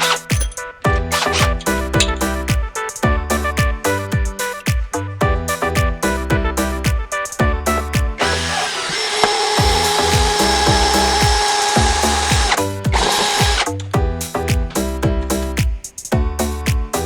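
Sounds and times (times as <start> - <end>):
background music: 0.0 - 17.0
cordless drill running: 8.2 - 13.7.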